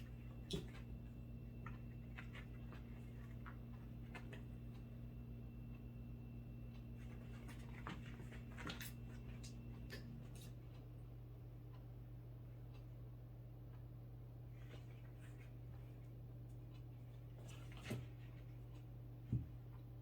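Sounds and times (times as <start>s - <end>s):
cat paws tapping and clicking: 0.0s - 5.9s, 6.6s - 10.8s
low hum: 0.0s - 17.6s.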